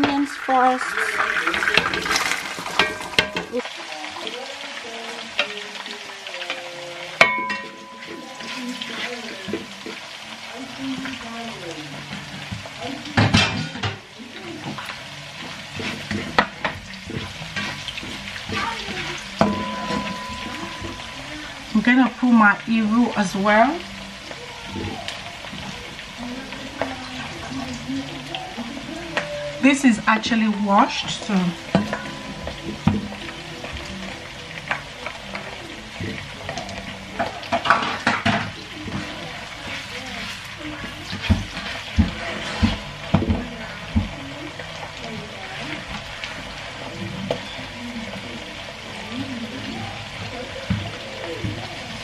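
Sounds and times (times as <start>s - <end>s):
onions sizzling in oil: 0.0s - 52.0s
spatula knocking on pan: 14.6s - 22.0s, 30.9s - 35.5s, 37.2s - 44.4s
spatula scraping a pan: 14.6s - 22.0s, 36.1s - 43.4s.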